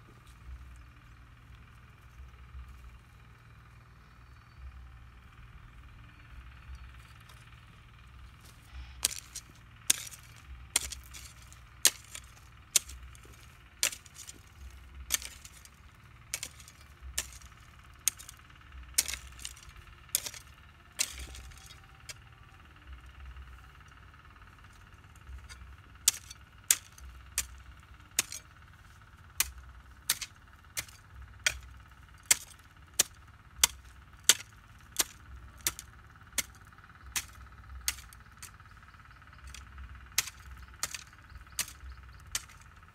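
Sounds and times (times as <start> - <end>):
hoe chopping into ground: 8.4 - 22.2, 24.7 - 38.6, 39.3 - 42.8.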